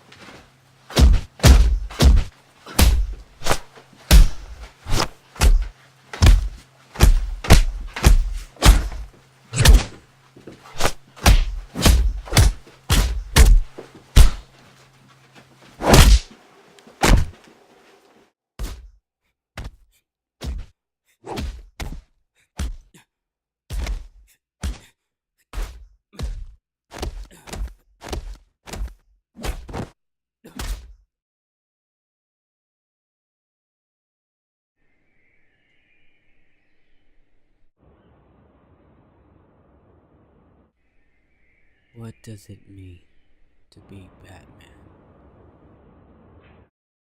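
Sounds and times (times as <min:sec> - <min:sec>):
punch and kick impacts: 0:00.9 - 0:10.0, 0:10.7 - 0:14.5, 0:15.8 - 0:16.3, 0:17.0 - 0:17.4, 0:18.6 - 0:19.0, 0:20.4 - 0:20.7, 0:21.3 - 0:22.9, 0:23.7 - 0:24.9, 0:25.6 - 0:31.0.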